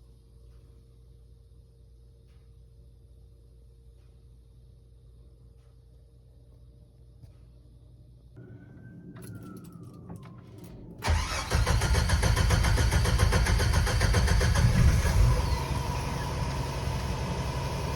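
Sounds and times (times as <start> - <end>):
car engine idling: 8.4 - 17.9
starter whine and clicks: 8.8 - 17.9.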